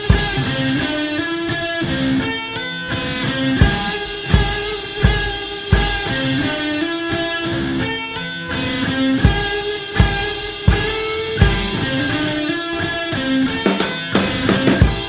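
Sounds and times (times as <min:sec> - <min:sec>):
bass drum beat: 0:00.0 - 0:01.0, 0:03.6 - 0:06.9, 0:09.2 - 0:12.5, 0:13.5 - 0:15.0
guitar playing sustained chords: 0:00.0 - 0:15.0.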